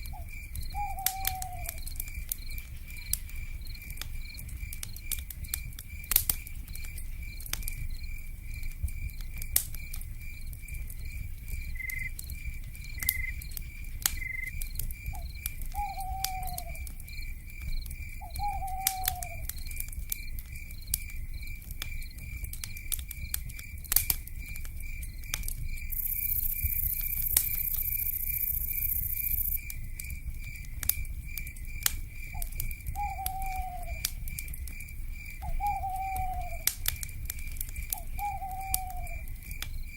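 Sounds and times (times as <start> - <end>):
fire crackling and popping: 0.0 - 39.9
insect chirping: 0.0 - 39.9
low fire rumble: 0.0 - 39.9
owl calling: 0.1 - 1.8, 15.8 - 16.8, 18.2 - 19.5, 33.0 - 34.0, 35.4 - 36.7, 38.0 - 39.2.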